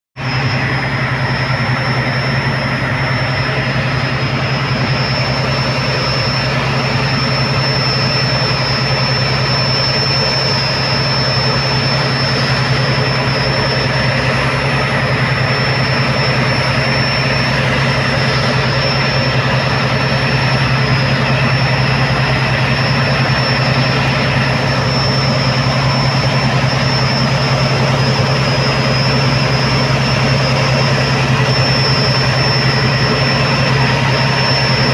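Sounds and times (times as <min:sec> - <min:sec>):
diesel engine drone: 0:00.2 - 0:34.9
high whine: 0:00.2 - 0:34.9.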